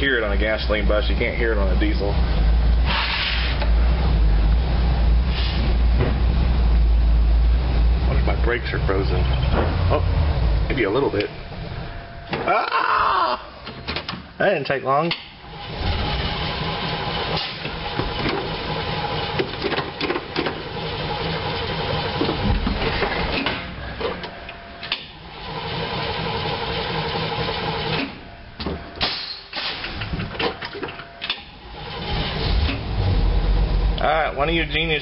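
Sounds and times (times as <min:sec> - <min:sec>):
bus engine cranking on starter: 0:15.4 - 0:23.7, 0:24.9 - 0:28.2, 0:29.0 - 0:33.8.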